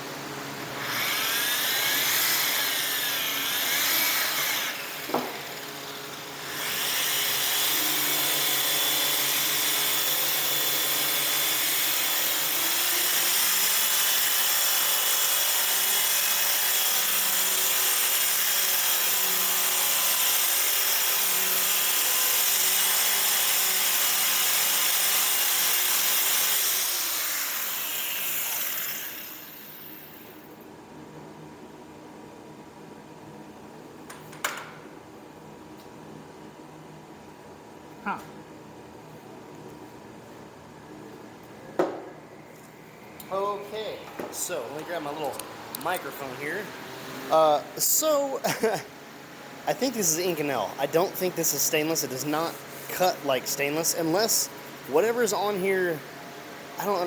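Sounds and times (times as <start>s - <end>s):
power sander on metal pipe: 6.4s - 30.1s.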